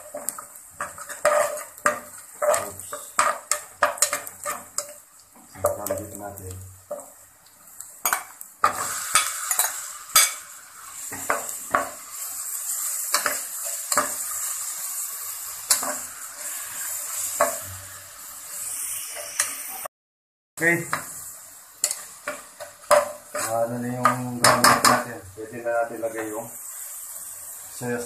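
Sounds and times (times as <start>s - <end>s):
utensil scraping a pan: 0.0s - 6.1s
meat sizzling in a pan: 0.0s - 19.9s, 20.6s - 28.0s.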